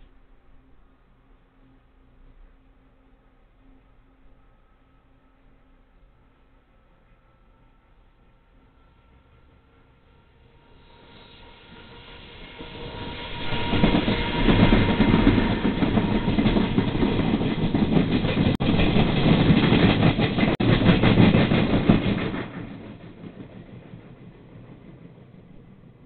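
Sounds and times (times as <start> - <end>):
train wheels clattering over rails: 11.1 - 26.0.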